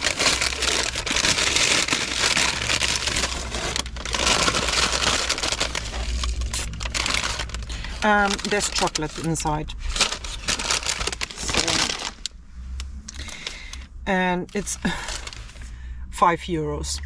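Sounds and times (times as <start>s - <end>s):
paper bag crinkling: 0.0s - 12.3s, 14.5s - 15.6s
low steady hum: 0.0s - 17.0s.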